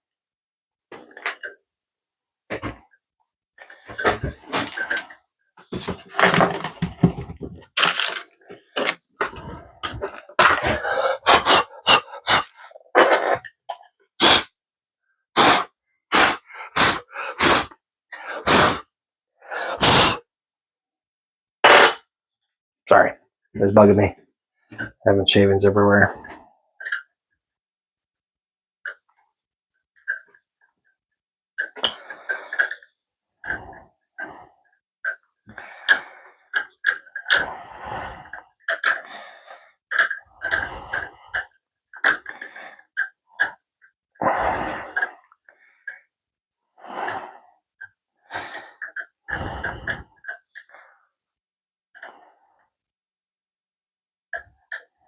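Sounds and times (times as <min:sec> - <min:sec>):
metal tools clinking: 0:06.1 - 0:07.1
compressed air puffs: 0:09.3 - 0:12.7, 0:14.2 - 0:14.5, 0:15.4 - 0:18.9, 0:19.5 - 0:20.2.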